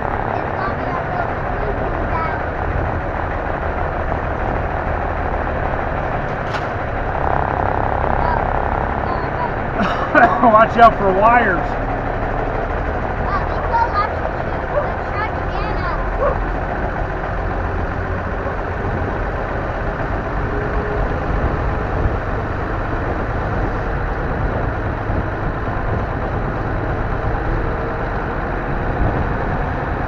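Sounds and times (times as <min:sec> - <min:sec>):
truck diesel engine rumbling: 0:00.0 - 0:30.0.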